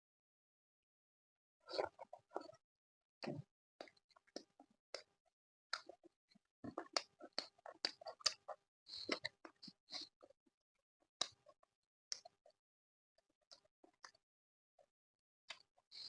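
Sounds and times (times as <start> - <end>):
chewing with wet mouth clicks: 6.7 - 10.1.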